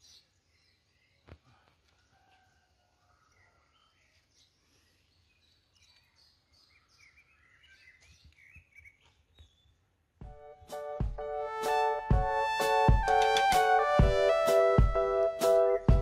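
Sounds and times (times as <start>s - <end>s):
birds chirping and warbling: 0.0s - 2.3s, 3.0s - 10.1s
music: 10.2s - 16.0s.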